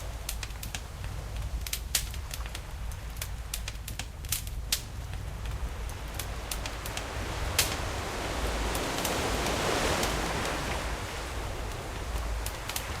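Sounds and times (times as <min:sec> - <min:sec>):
campfire crackling and popping: 0:00.0 - 0:08.0, 0:11.5 - 0:13.0
ocean waves: 0:04.6 - 0:13.0.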